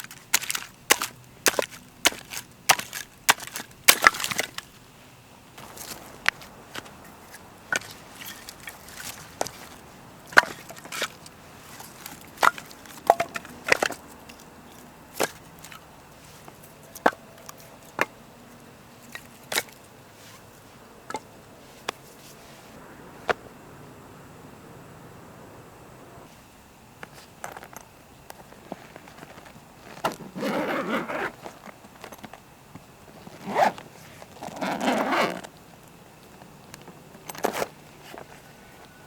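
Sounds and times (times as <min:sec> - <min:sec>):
wood splintering: 0:00.0 - 0:04.7.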